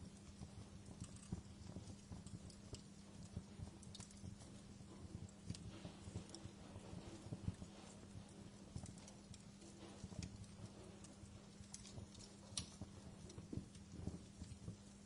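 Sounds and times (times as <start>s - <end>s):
faint steady hum: 0.0s - 15.0s
wood fire crackling and popping: 0.0s - 15.0s.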